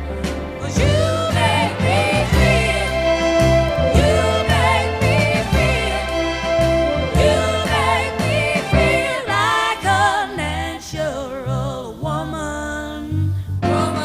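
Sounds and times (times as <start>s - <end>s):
pop song with singer: 0.3s - 14.0s
steady bass beat: 0.6s - 9.6s.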